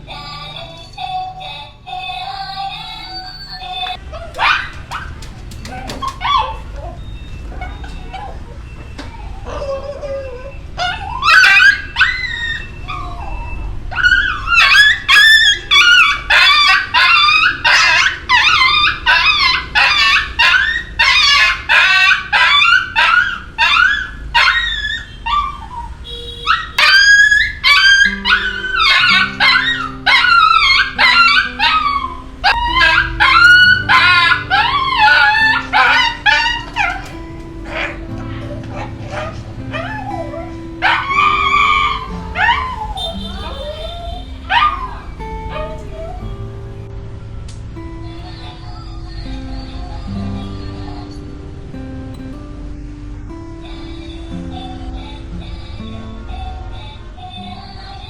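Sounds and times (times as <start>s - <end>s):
dog whining and yelping: 0.0s - 46.3s, 53.6s - 58.0s
low background music: 27.6s - 43.5s, 44.2s - 56.2s.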